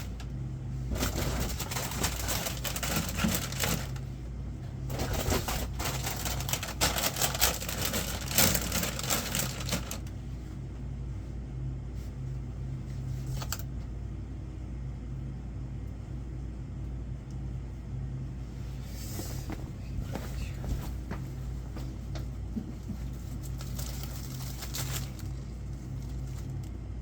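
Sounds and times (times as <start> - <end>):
steady low hum: 0.0 - 27.0
packaging rustling and clatter: 0.9 - 4.1, 4.9 - 10.1, 23.0 - 26.7.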